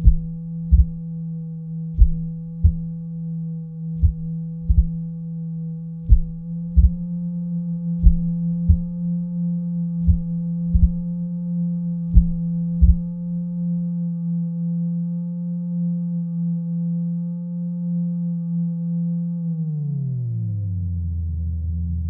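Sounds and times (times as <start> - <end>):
short low thumps: 0.0 - 1.0, 2.0 - 3.0, 4.0 - 5.1, 6.1 - 7.1, 8.0 - 9.0, 10.0 - 11.1, 12.1 - 13.2
low electronic drone: 0.0 - 22.0.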